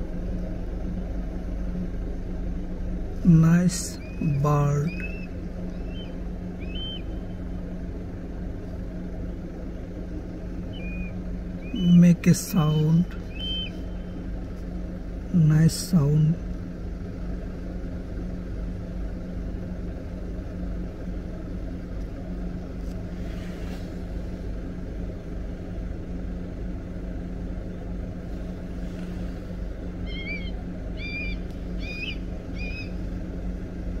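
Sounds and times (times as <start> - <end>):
low rumble and hum: 0.0 - 34.0
bird calling: 3.3 - 7.5, 10.6 - 14.3, 30.0 - 33.2.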